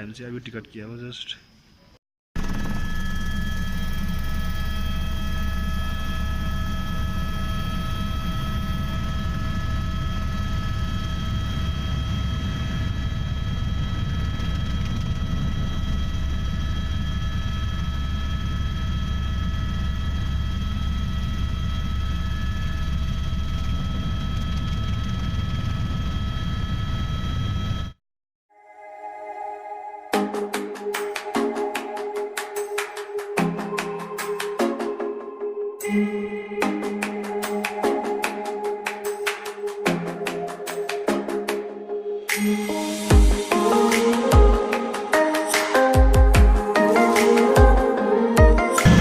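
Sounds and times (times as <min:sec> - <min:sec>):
helicopter rotor rumble: 0:02.4 - 0:28.0
high engine whine: 0:02.4 - 0:28.0, 0:42.1 - 0:49.0.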